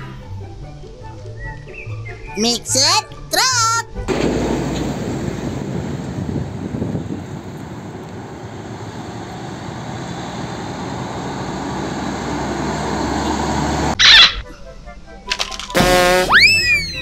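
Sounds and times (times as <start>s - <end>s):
heavy highway traffic: 4.1s - 14.1s, 15.7s - 16.4s.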